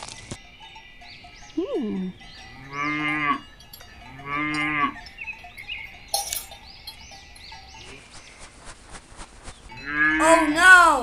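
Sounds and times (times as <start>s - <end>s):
cow mooing: 2.5s - 5.1s, 9.8s - 10.4s.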